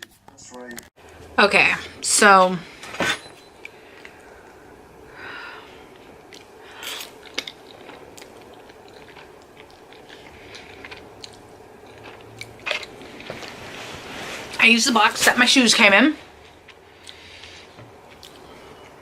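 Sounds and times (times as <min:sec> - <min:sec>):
soft rustles: 0:13.0 - 0:15.4.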